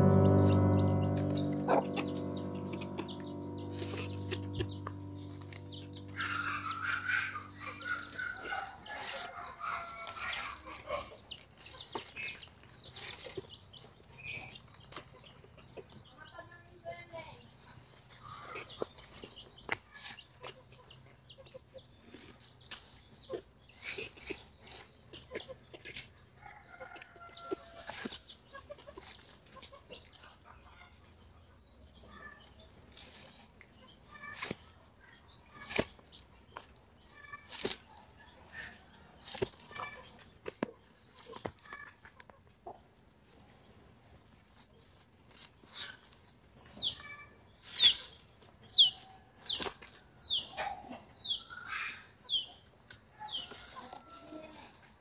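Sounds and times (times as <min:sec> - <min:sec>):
falling bird chirps: 0:00.0 - 0:13.6.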